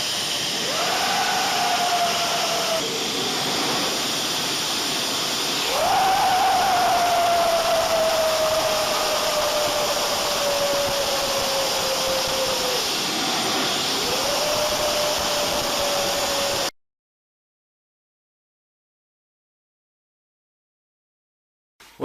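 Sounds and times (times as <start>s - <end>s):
jet engine rushing: 0.0s - 16.7s
jet engine whine: 0.0s - 16.8s.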